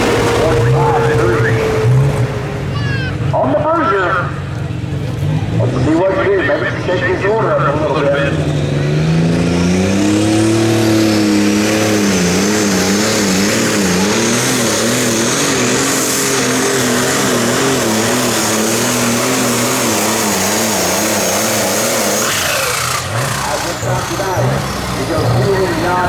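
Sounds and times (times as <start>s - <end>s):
high whine: 0.0s - 3.6s
diesel tractor engine roaring: 0.0s - 26.0s.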